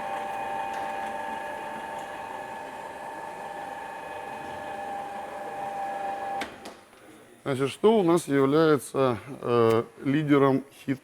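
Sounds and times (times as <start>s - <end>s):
electric lift motor whining: 0.0s - 6.5s.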